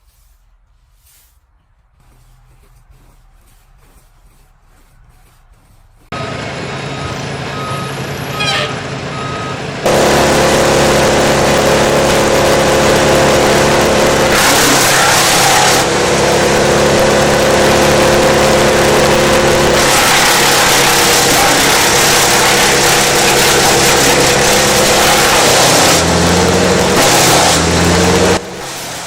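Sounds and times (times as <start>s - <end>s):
wood chipper engine running: 6.1s - 29.0s
short beeps: 6.2s - 9.6s.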